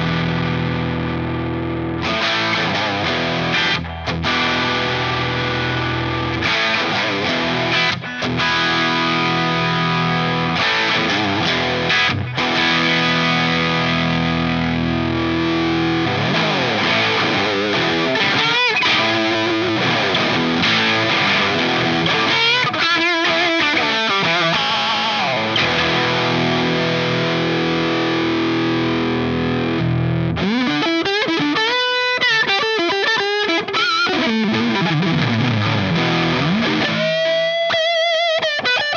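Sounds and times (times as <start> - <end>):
overdriven electric guitar: 0.0 - 38.9.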